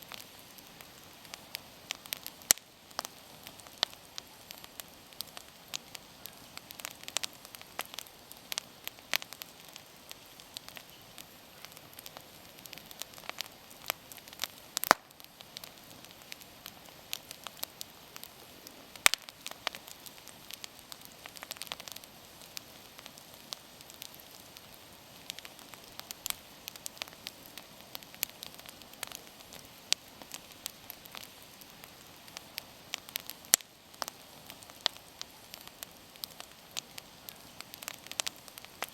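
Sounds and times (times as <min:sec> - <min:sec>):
bonfire crackling and popping: 0:00.0 - 0:38.9
faint fire hiss: 0:00.0 - 0:38.9.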